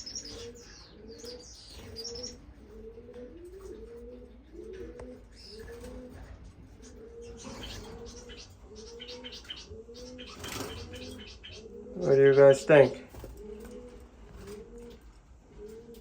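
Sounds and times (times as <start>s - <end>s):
finches chirping: 0.0s - 2.4s, 5.3s - 6.0s, 6.8s - 13.1s.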